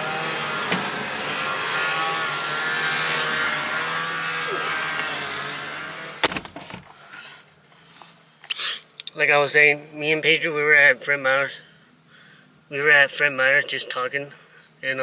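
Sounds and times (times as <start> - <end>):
car engine running: 0.0 - 6.9
traffic noise: 0.0 - 8.2
car door opening and shutting: 0.2 - 5.3, 6.2 - 6.9.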